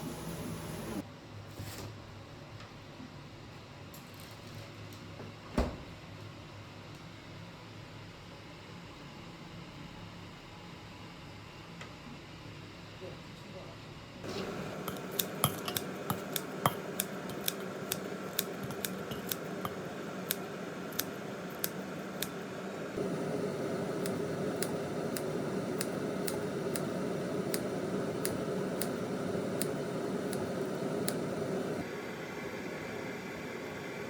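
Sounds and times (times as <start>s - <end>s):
steady hiss: 0.0s - 1.0s, 14.3s - 34.0s.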